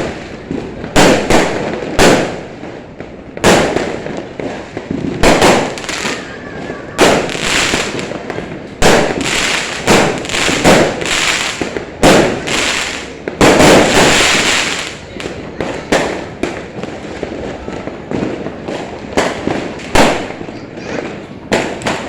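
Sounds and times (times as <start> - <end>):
fireworks banging and crackling: 0.0 - 22.0
small firework pops: 7.0 - 22.0.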